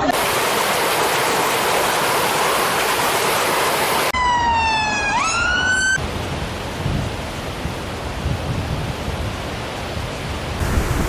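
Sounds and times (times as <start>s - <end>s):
rushing water: 0.0s - 4.2s, 6.0s - 11.0s
emergency siren: 4.1s - 6.0s
low gusty rumbles: 10.4s - 11.0s.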